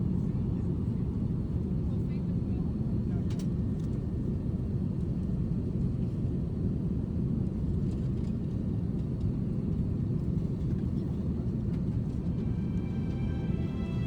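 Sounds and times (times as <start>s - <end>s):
airliner cabin engine rumble: 0.0s - 14.0s.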